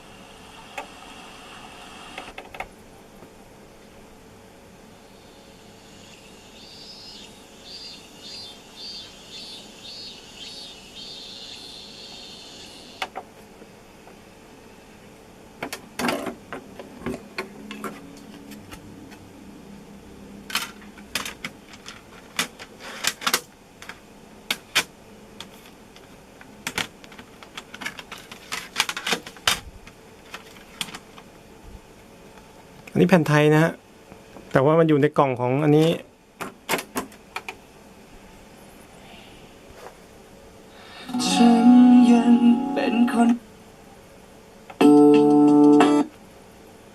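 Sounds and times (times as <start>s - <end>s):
high chirp: 5.2s - 13.0s
plastic cd cases clacking: 20.5s - 26.1s, 26.7s - 29.6s, 30.2s - 31.2s.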